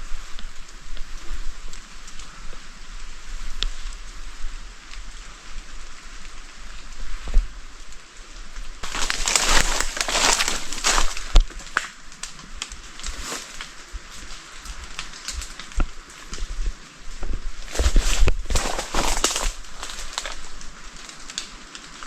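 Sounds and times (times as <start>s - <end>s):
dry leaves rustling and crunching: 8.6s - 22.0s.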